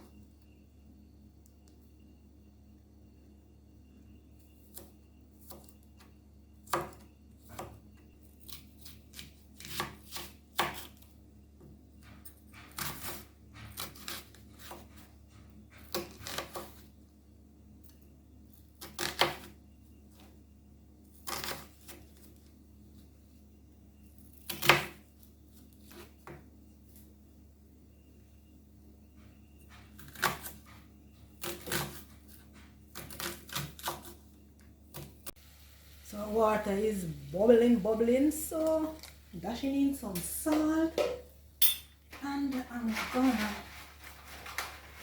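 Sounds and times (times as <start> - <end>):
knife chopping on cutting board: 12.2 - 15.1, 15.8 - 16.8.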